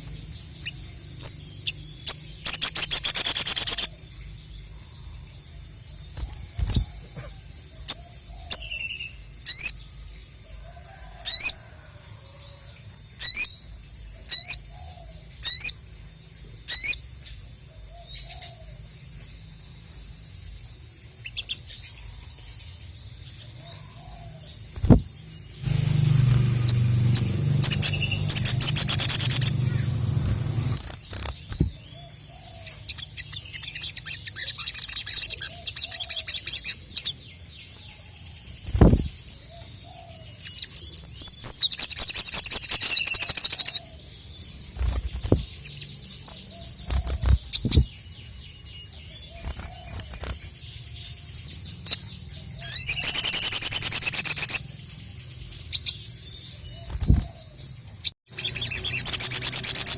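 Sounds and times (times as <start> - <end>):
songbird trilling: 0.0 - 5.2, 23.7 - 37.2, 51.7 - 54.7, 58.3 - 59.9
bird chirps: 0.0 - 59.9
low thumps: 24.8 - 30.8.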